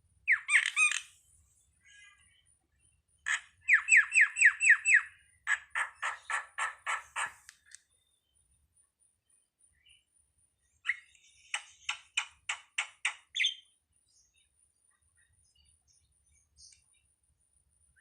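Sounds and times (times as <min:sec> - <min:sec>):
starling calling: 0:00.3 - 0:01.2, 0:03.3 - 0:07.7
harsh rapidly repeated bird notes: 0:03.3 - 0:07.4.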